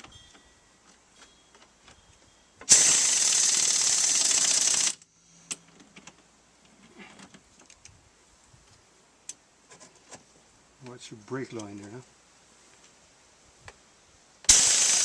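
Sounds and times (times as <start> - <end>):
impact wrench hammering: 14.5 - 15.0.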